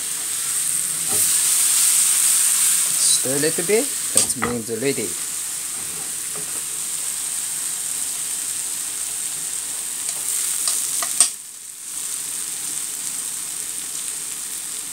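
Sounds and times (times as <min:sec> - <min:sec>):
potatoes sizzling in oil: 0:00.0 - 0:14.9.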